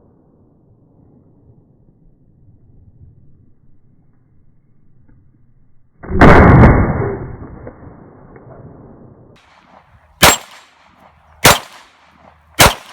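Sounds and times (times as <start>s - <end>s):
pistol shots cracking: 9.4s - 12.9s.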